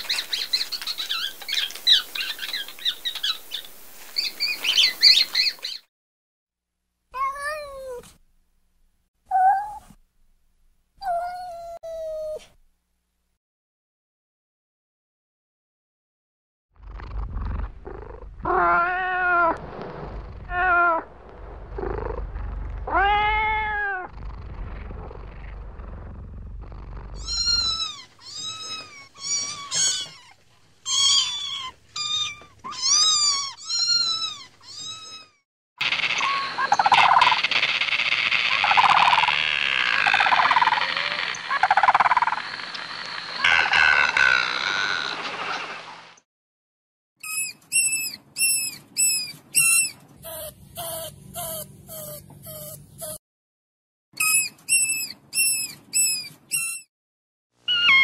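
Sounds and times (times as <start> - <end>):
cats meowing: 7.2 - 8.0, 18.4 - 19.6, 20.5 - 21.1, 22.8 - 24.1, 27.2 - 35.4, 57.7 - 58.0
high-pitched kitten mews: 9.3 - 9.9, 57.7 - 58.0
low rumble: 19.6 - 23.0.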